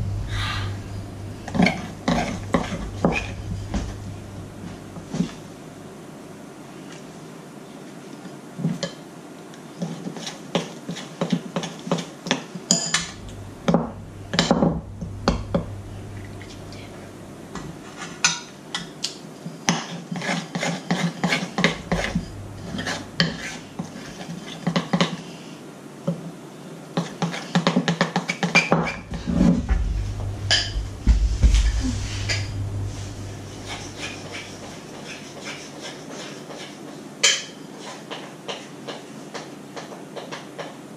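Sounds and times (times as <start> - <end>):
low rumble: 0.0 - 5.8, 13.1 - 17.5, 21.8 - 23.2, 29.1 - 35.0
utensils clinking against mixing bowl: 12.7 - 13.2.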